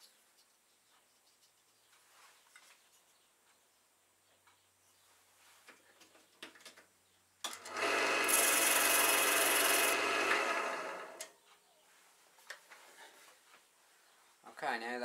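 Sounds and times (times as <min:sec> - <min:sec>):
lathe motor hum: 0:07.6 - 0:11.3
tool scraping wood on lathe: 0:07.6 - 0:11.3.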